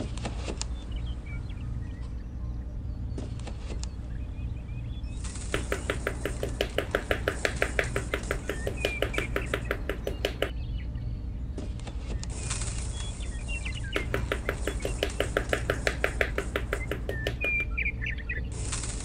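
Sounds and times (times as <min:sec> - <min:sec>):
small hammer tapping on wood: 0:05.5 - 0:10.5, 0:14.0 - 0:17.7.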